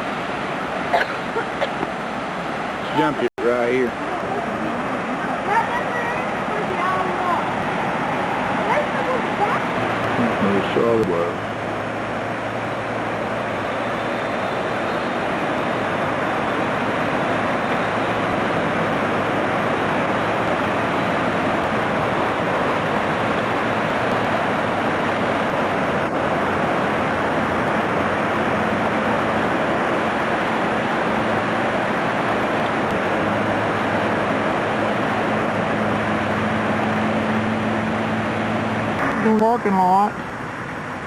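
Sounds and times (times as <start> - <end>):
low engine hum: 0.0 - 41.0
road and wind noise: 0.0 - 41.0.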